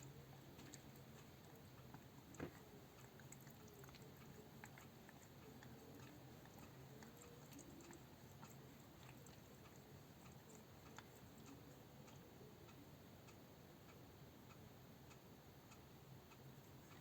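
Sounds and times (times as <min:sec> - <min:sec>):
faint ticks: 0:00.0 - 0:17.0.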